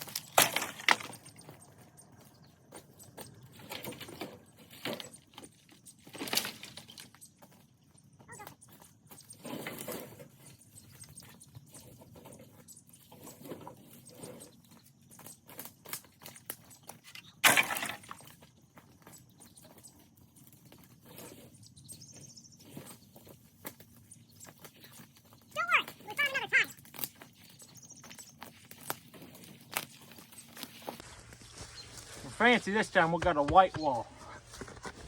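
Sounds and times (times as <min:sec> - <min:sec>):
junk and brush clinking: 0:00.0 - 0:01.7, 0:15.3 - 0:18.4.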